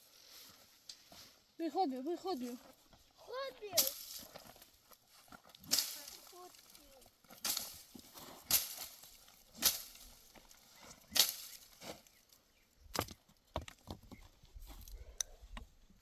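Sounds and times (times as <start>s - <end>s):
footsteps crunching on stony ground: 0.0s - 15.0s.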